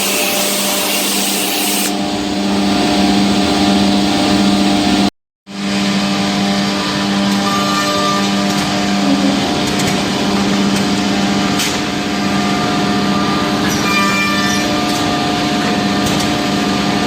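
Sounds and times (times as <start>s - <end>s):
machine motor hum: 0.0s - 7.3s.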